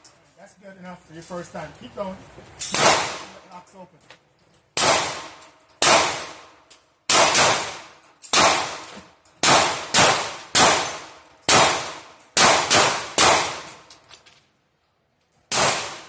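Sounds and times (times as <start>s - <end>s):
pistol shots ringing: 2.6s - 3.4s, 4.8s - 13.8s, 15.5s - 16.0s.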